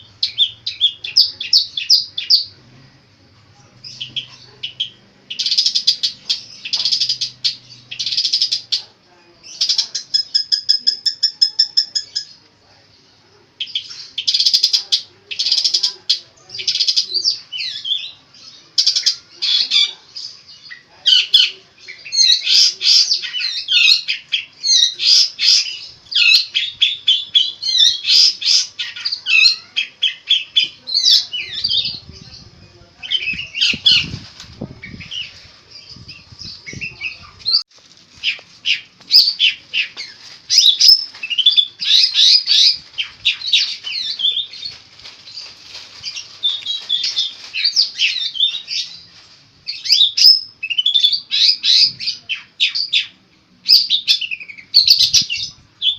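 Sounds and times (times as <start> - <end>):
bird chattering song: 0.0 - 2.5, 3.8 - 12.4, 13.6 - 18.2, 38.2 - 44.8.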